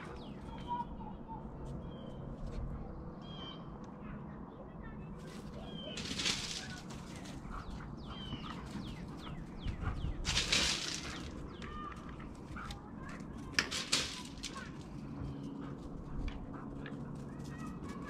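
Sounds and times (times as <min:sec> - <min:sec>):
small birds chirping: 0:00.0 - 0:13.5, 0:14.2 - 0:18.0
rustling: 0:05.2 - 0:09.2, 0:10.2 - 0:15.1.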